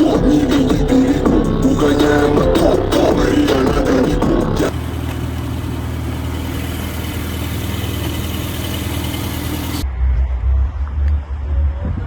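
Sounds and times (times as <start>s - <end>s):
deep heavy low rumble: 0.0s - 5.0s, 9.8s - 12.0s
car engine idling: 0.0s - 9.8s.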